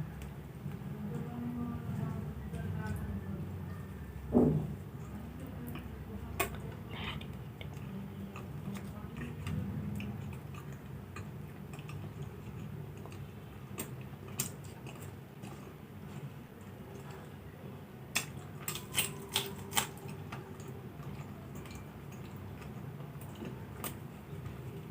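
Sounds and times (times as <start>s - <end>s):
steady low hum: 0.0s - 24.9s
person chewing food: 5.6s - 17.4s, 18.1s - 24.9s.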